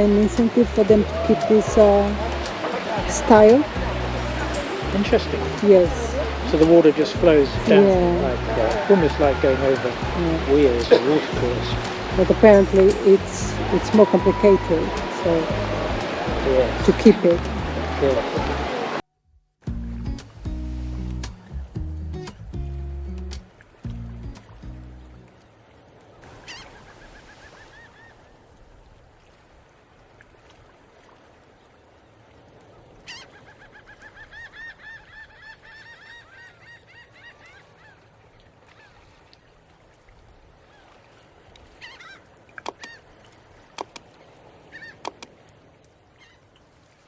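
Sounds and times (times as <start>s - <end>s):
waterfowl calling: 0.0s - 18.4s, 26.2s - 28.4s, 33.0s - 39.0s, 41.7s - 43.2s, 44.6s - 45.4s
sharp clicks: 42.6s - 42.9s, 43.8s - 44.0s, 45.0s - 45.3s.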